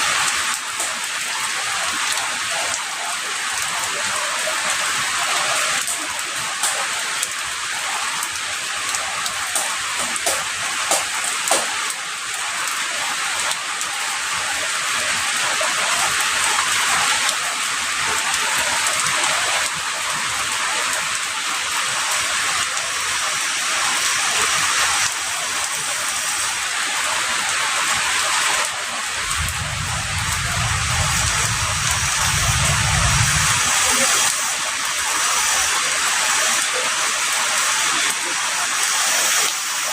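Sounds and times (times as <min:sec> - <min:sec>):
heavy rain: 0:00.0 - 0:39.9
raindrop ticks: 0:00.1 - 0:14.0, 0:16.4 - 0:21.3, 0:28.6 - 0:35.8
low rumble: 0:29.1 - 0:34.0.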